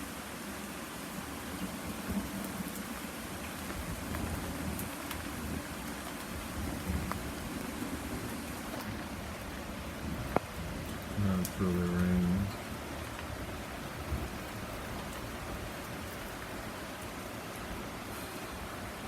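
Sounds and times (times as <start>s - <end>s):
heavy rain hissing: 0.0s - 19.0s.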